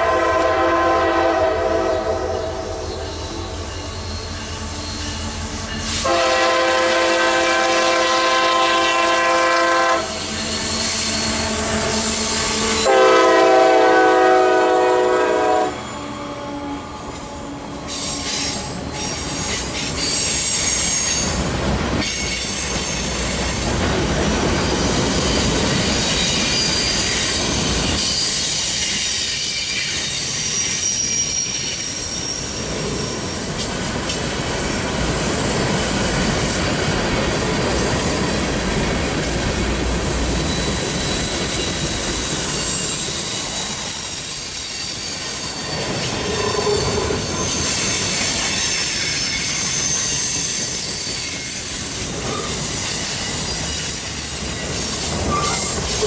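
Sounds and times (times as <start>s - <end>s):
locomotive air horn blasts: 0.0s - 3.5s, 6.0s - 10.2s, 11.5s - 16.8s
high flange squeal: 0.0s - 6.2s, 24.8s - 33.5s, 37.6s - 56.0s.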